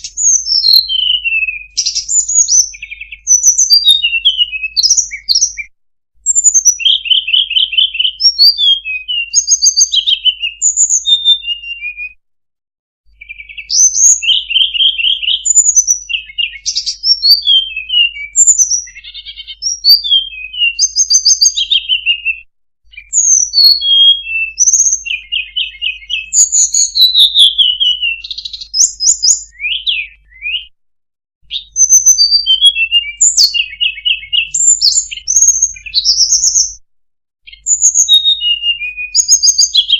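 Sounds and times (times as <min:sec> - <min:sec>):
bird song whistles and trills: 0:00.0 - 0:12.2, 0:13.1 - 0:30.8, 0:31.4 - 0:36.8, 0:37.4 - 0:39.9.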